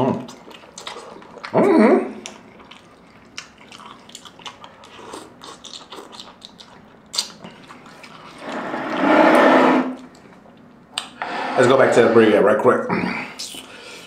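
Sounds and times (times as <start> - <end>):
wet chewing and slurping: 0.2 - 10.7.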